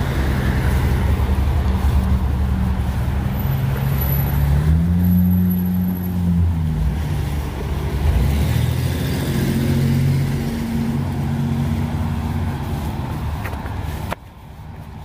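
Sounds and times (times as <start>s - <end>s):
street noise: 0.0s - 15.0s
vehicle engine running: 0.0s - 15.0s.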